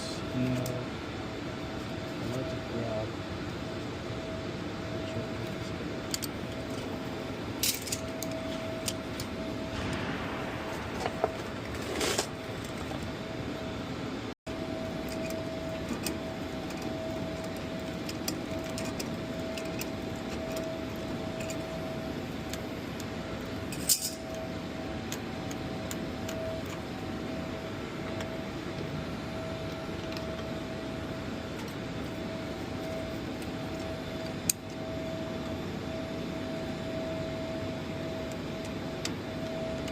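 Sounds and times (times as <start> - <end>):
faint steady whine: 0.0 - 39.9
hangar background hum: 0.0 - 39.9
hand tools clinking on metal: 23.7 - 24.3.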